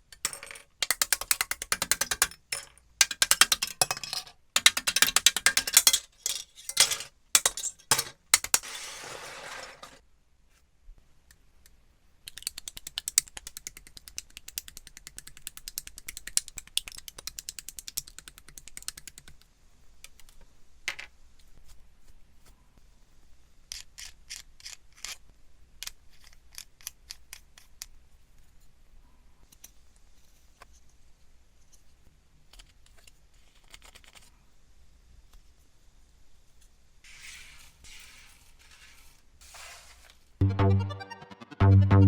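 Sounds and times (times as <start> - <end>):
plastic pieces snapping together: 0.0 - 8.9.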